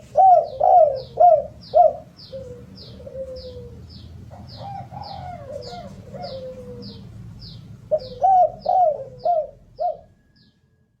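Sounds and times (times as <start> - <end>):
dove cooing: 0.0 - 7.2, 7.8 - 10.2.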